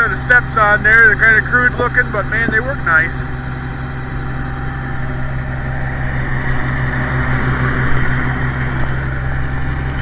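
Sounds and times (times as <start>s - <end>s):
tractor engine idling: 0.0s - 10.0s.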